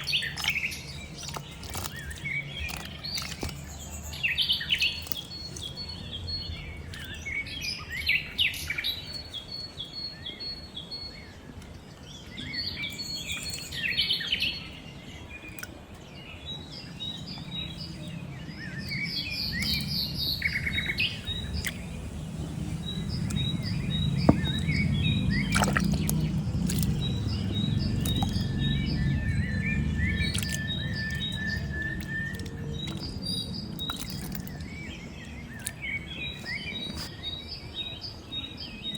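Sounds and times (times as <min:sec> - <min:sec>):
birds chirping: 0:00.0 - 0:38.9
low rumbling noise: 0:17.4 - 0:36.9.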